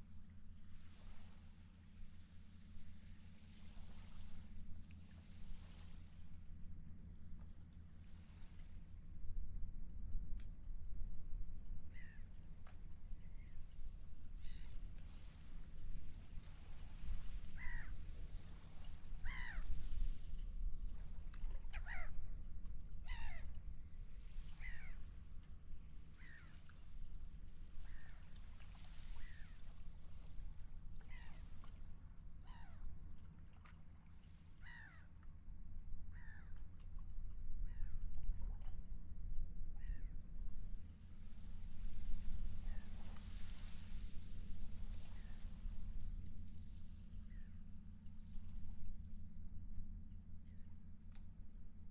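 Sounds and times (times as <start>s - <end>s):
steady low rumble: 0.0s - 51.9s
seagulls calling: 17.6s - 18.0s, 19.2s - 19.7s, 21.7s - 22.2s, 23.1s - 23.5s, 24.6s - 25.0s, 26.2s - 26.6s, 31.0s - 31.5s, 34.6s - 35.1s.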